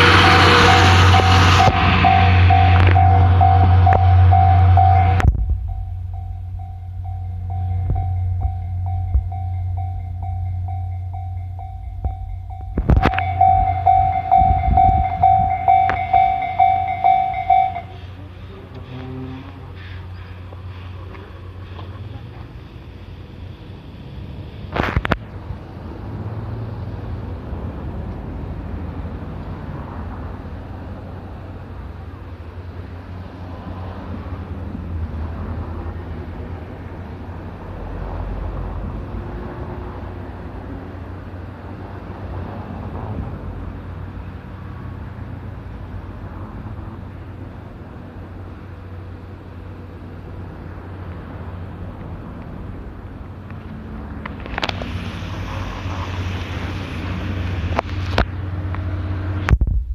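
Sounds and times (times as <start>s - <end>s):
train rumbling: 0.0s - 59.9s
wind on microphone: 12.0s - 16.1s.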